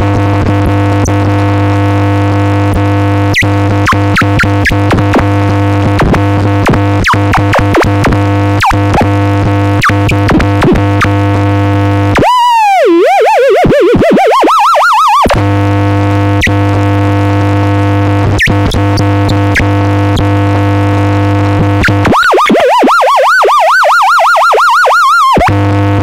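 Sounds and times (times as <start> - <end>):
buzzing synth drone: 0.0 - 26.0
swooping pitch blips: 3.3 - 5.0, 12.2 - 15.5, 21.3 - 25.6
warbling electronic tone: 12.2 - 15.5, 21.6 - 25.8.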